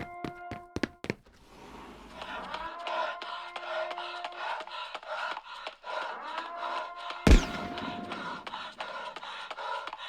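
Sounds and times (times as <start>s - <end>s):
loud bang with ringing: 7.3s - 8.7s.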